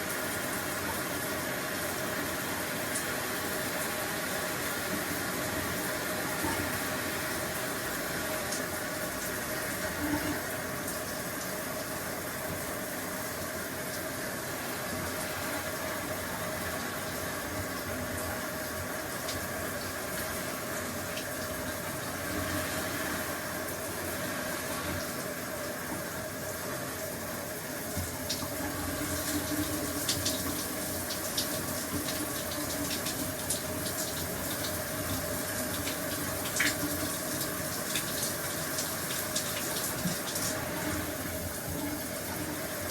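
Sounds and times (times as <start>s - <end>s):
shower water spraying: 27.4s - 42.9s.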